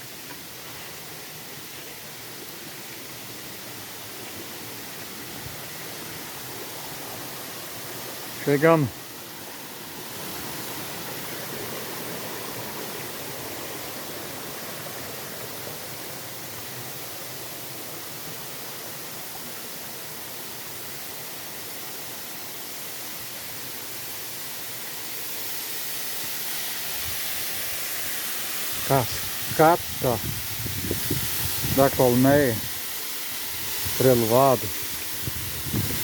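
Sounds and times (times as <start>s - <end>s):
waterfall rushing: 0.0s - 36.0s
wind on microphone: 28.7s - 32.8s, 33.5s - 36.0s.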